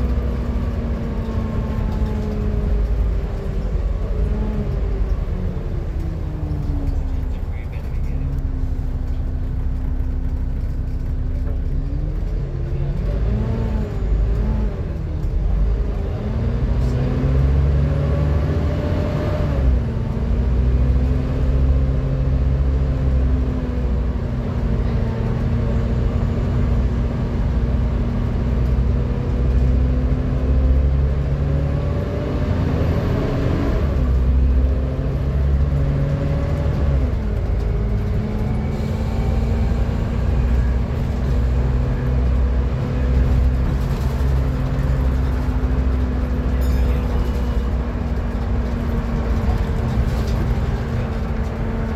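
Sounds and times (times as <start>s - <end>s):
bus diesel engine drone: 0.0s - 51.9s
bus whine: 0.0s - 51.9s.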